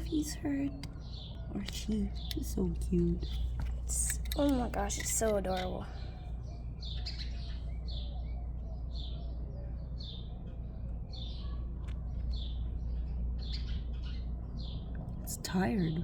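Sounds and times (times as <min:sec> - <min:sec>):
baby bird chirping: 0:11.1 - 0:14.2.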